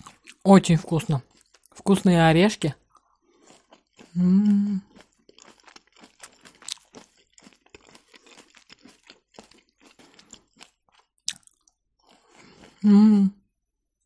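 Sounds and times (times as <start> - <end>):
crunchy wet chewing: 0.0 - 12.8
person humming: 4.2 - 4.9, 12.8 - 13.4.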